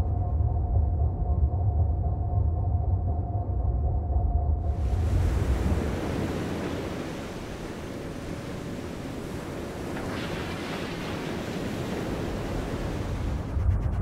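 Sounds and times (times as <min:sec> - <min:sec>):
rushing water: 0:04.7 - 0:13.5.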